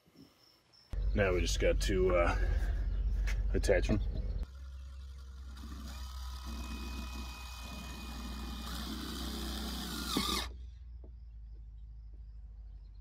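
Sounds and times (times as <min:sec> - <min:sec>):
power drill driving screws: 0:05.4 - 0:10.5.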